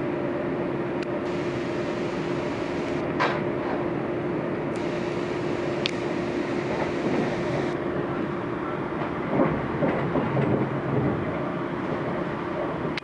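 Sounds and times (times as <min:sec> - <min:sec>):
constant hum: 0:00.0 - 0:13.0
train wheels rumbling on rail: 0:00.0 - 0:13.0.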